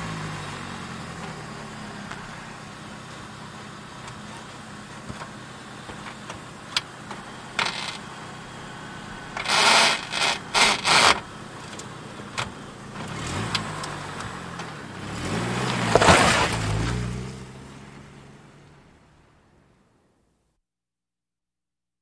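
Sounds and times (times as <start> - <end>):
car engine revving: 0.0 - 18.9
car starter grinding: 4.0 - 17.1.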